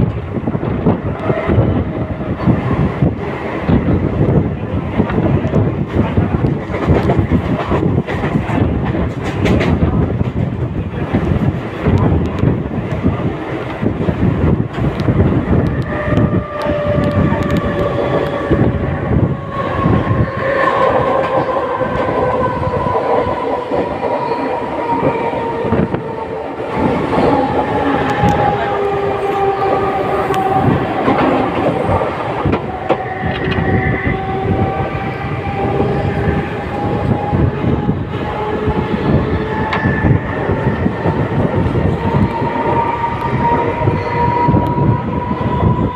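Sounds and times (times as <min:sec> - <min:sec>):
train motor whine: 0:14.9 - 0:45.9.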